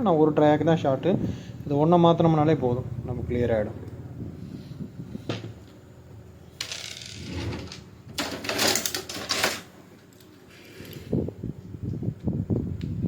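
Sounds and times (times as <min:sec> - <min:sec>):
tools clattering on workbench: 0:06.6 - 0:09.8.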